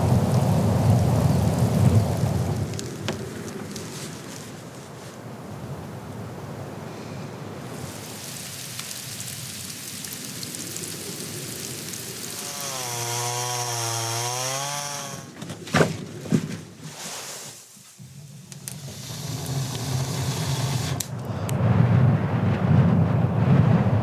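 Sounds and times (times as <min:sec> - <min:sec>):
storm wind: 0:00.0 - 0:08.2, 0:18.4 - 0:24.0.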